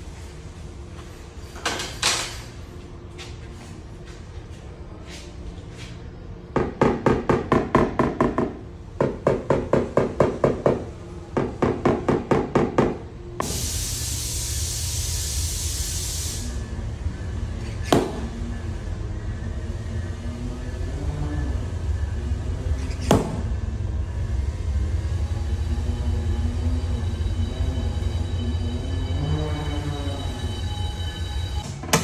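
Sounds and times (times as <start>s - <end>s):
steady hiss: 13.4s - 16.6s.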